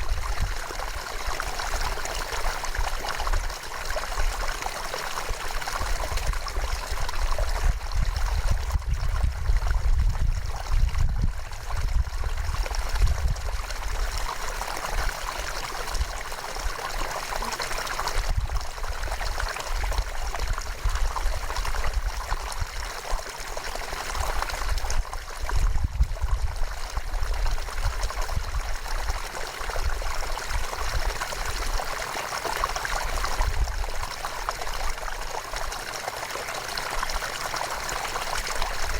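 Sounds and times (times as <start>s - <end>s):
river water rushing and trickling: 0.0s - 38.9s.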